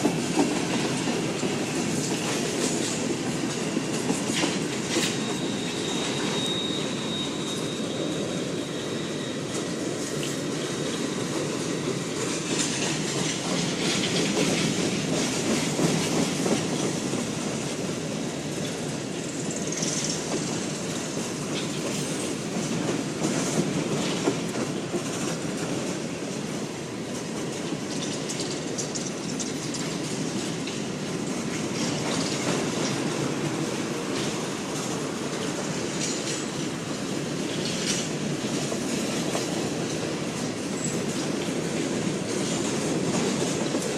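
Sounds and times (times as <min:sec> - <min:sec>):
clickety-clack of rail joints: 0:00.0 - 0:43.9
train wheels rumbling on rails: 0:00.0 - 0:43.9
wheels squealing: 0:04.8 - 0:10.0.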